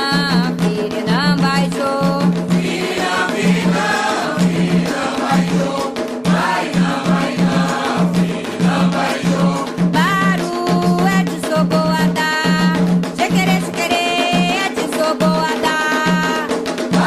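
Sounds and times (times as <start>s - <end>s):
hand drums: 0.0s - 17.0s
group of voices chanting: 2.6s - 9.6s.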